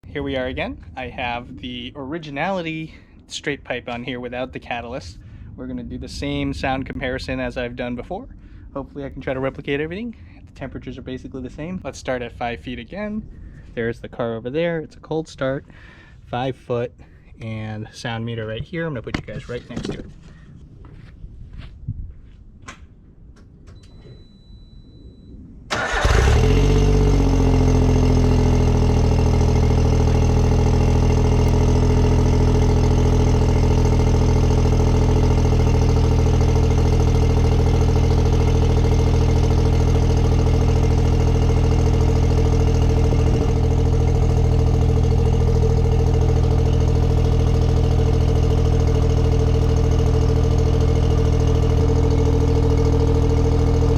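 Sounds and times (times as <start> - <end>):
car engine starting and idling: 25.7 - 53.9.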